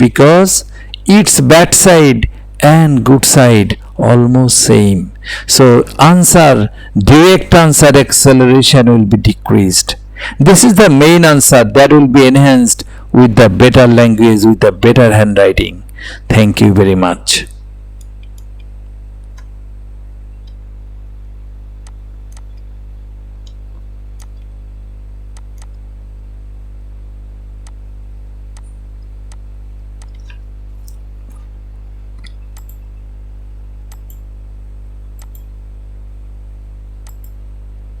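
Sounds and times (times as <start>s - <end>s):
low electrical hum with buzz: 0.0s - 38.0s
faint scattered clicks: 25.3s - 25.8s, 32.2s - 32.8s, 33.9s - 34.3s, 35.1s - 35.5s, 37.0s - 37.4s.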